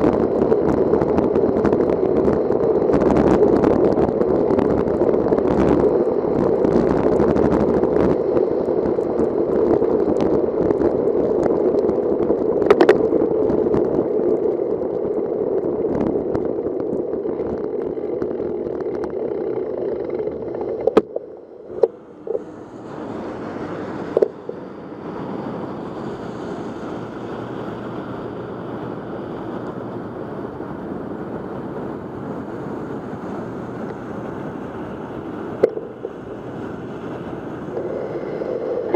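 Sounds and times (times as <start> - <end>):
wet bicycle tyre noise: 21.7 - 38.9
wind rushing: 22.0 - 38.9.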